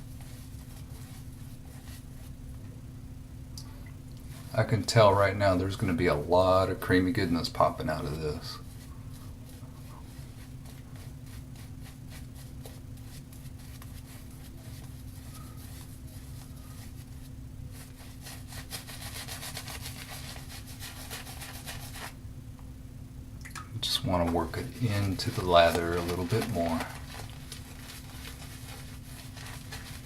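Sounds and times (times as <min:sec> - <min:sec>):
shaving brush swishing lather: 0:06.3 - 0:22.2, 0:24.0 - 0:30.0.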